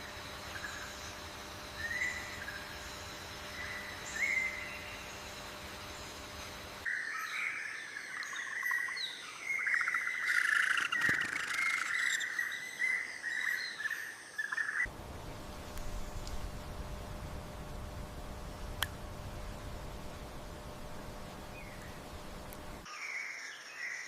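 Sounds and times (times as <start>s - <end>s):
birds chirping and twittering: 0.5s - 23.3s
faint hiss: 14.9s - 22.9s.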